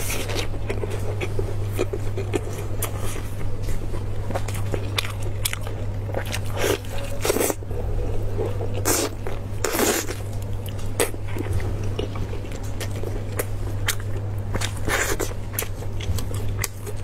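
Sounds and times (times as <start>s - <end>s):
biting and chewing meat: 0.0s - 17.0s
steady low hum: 0.0s - 17.0s.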